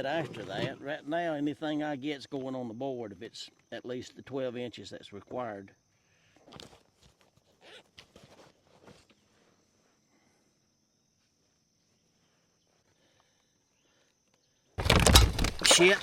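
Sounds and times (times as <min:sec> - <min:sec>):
sudden loud commotion: 0:14.8 - 0:16.0.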